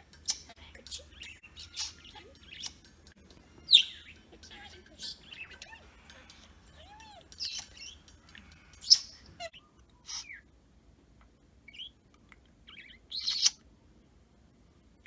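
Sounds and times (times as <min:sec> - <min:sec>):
budgerigar chirping: 0:00.2 - 0:02.9, 0:03.5 - 0:10.4, 0:12.7 - 0:13.6.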